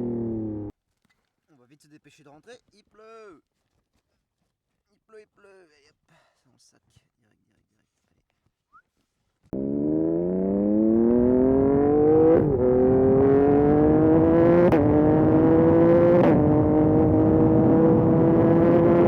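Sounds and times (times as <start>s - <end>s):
motorcycle engine accelerating: 0.0s - 0.7s, 9.6s - 19.0s.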